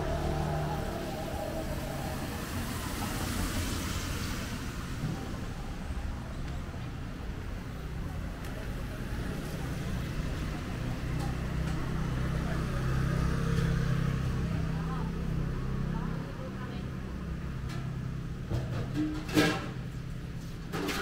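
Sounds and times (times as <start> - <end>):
vehicle passing hiss: 0.0 - 6.3
low engine hum of traffic: 0.0 - 21.0.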